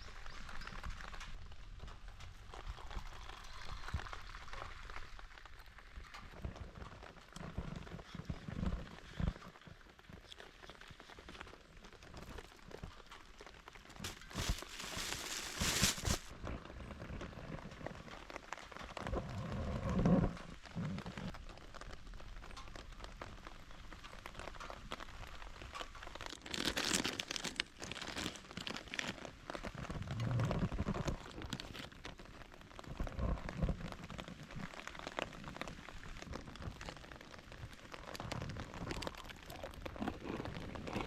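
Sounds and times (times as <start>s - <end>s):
crinkling rustle: 0.0s - 41.0s
rain pattering: 0.0s - 41.0s.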